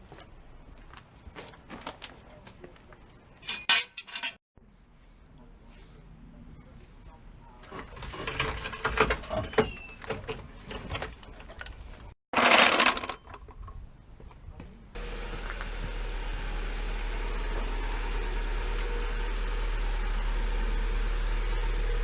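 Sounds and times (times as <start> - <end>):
car engine idling: 15.0 - 22.0.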